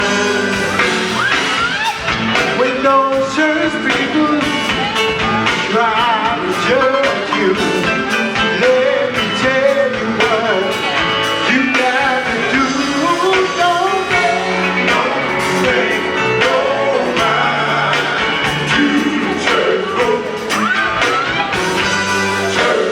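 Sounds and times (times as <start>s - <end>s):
band accompaniment: 0.0s - 22.9s
gospel vocal group singing: 0.0s - 22.9s
steady drum beat: 0.0s - 22.9s.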